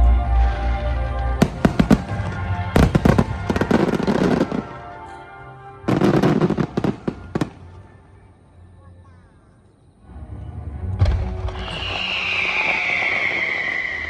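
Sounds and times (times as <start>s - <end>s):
music playing: 0.0s - 12.5s
fireworks crackling pops: 11.0s - 14.0s.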